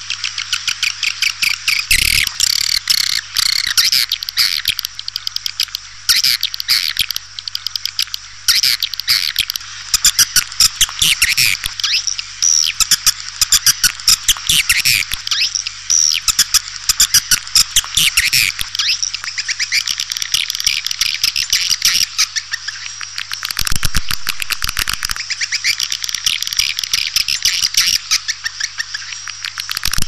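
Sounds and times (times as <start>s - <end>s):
faint steady hum: 0.0s - 30.0s
swiftlets twittering: 1.9s - 2.8s.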